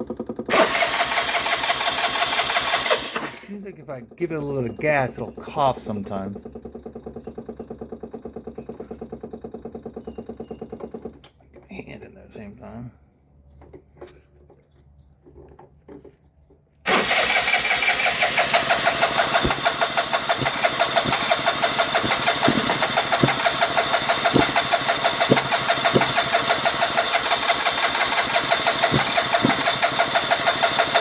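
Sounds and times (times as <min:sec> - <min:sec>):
scooter starter cranking engine: 0:00.0 - 0:03.6, 0:05.9 - 0:11.3, 0:16.8 - 0:31.0.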